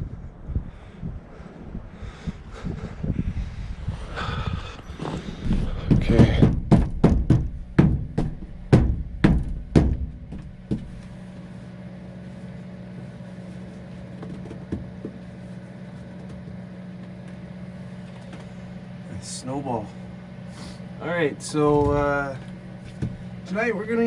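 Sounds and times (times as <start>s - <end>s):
steady low hum: 0.0s - 24.0s
snow being swept off truck: 20.5s - 20.8s.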